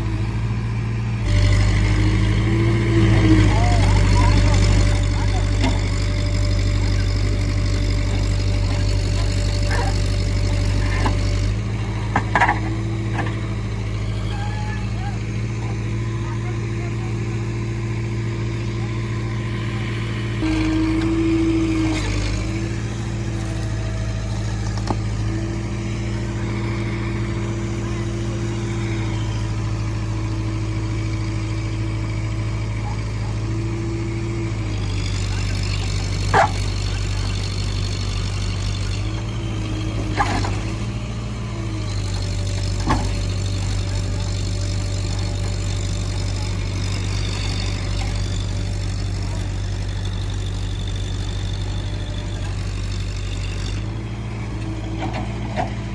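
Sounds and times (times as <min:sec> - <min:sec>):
heavy diesel engine running: 0:00.0 - 0:55.9.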